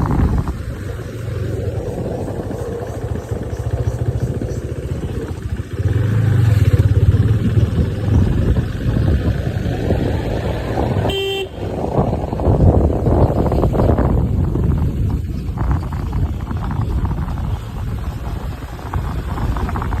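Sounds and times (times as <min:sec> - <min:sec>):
vehicle engine running: 0:00.0 - 0:20.0
short horn toot: 0:11.1 - 0:11.7.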